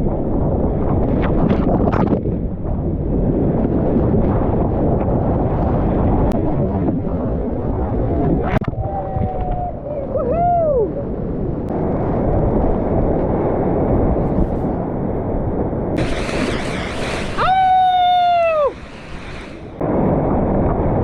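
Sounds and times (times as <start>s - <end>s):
wind buffeting microphone: 0.0s - 21.0s
rushing river water: 16.0s - 19.8s.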